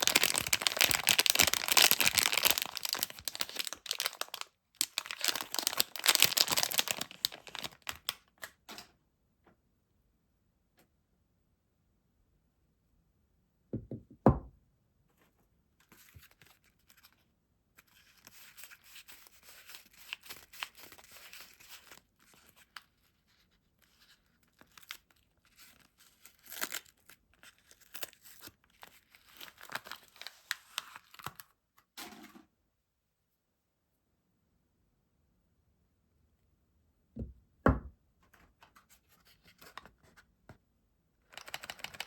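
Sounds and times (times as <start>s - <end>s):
wrapper tearing and crinkling: 0.0s - 8.5s, 24.5s - 31.4s.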